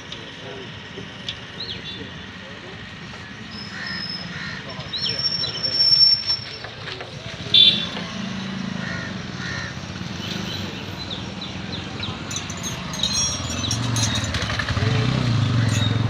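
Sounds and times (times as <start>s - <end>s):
vehicle engine humming: 0.0s - 16.0s
bird chirping: 10.2s - 14.7s.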